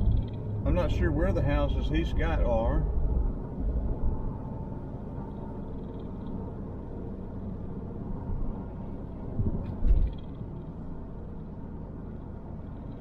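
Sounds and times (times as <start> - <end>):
car engine and tyre rumble: 0.0 - 13.0
low thumps of car over bump: 9.3 - 10.5.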